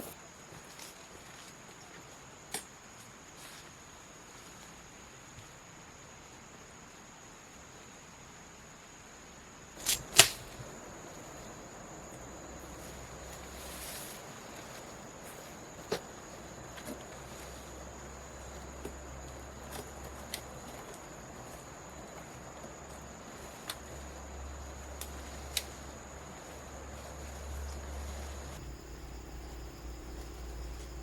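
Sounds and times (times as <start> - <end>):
high-pitched insect trill: 9.8 - 31.0
low background hum: 9.8 - 31.0.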